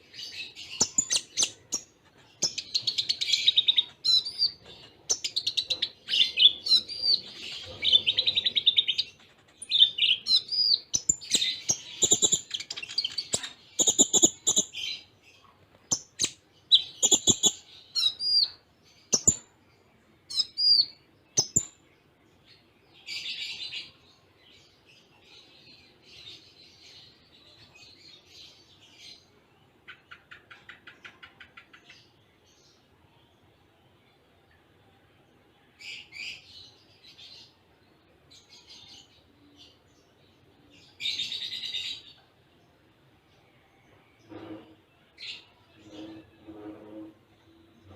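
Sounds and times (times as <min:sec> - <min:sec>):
bird twittering song: 0:00.0 - 0:34.7.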